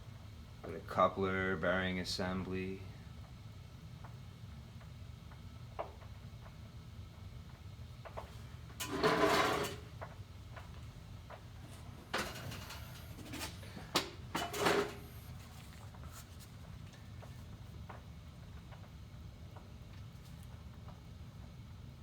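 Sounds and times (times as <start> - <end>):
low hum of equipment: 0.0 - 22.0
short knocks and scrapes: 8.8 - 9.8.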